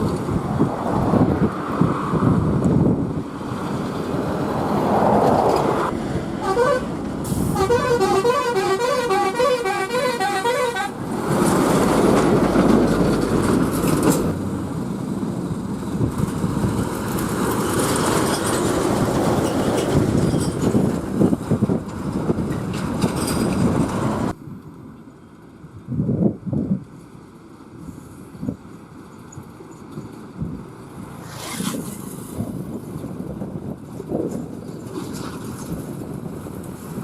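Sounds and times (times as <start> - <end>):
trucks passing: 0.0 - 25.9, 26.8 - 37.0
vehicle horn beeping: 6.4 - 11.0.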